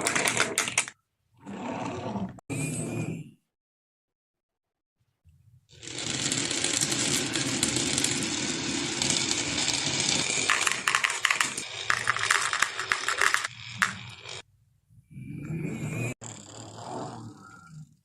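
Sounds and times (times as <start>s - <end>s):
marbles rolling and clattering: 5.8s - 14.4s.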